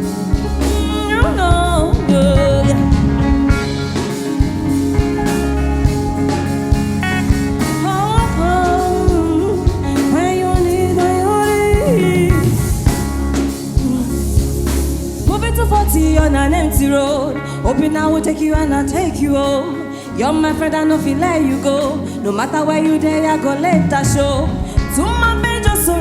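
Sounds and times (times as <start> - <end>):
drum kit beat: 0.0 - 17.9, 23.7 - 26.0
bass and guitar: 0.0 - 26.0
sliding lead melody: 0.0 - 26.0.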